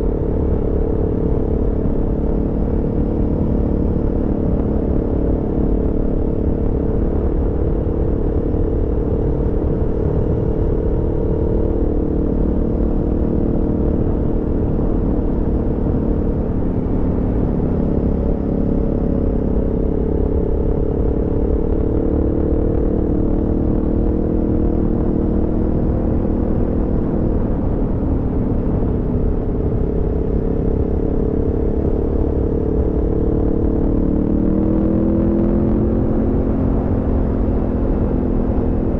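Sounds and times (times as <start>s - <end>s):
motorcycle engine cruising: 0.0s - 38.9s
wind and road rumble: 0.0s - 38.9s.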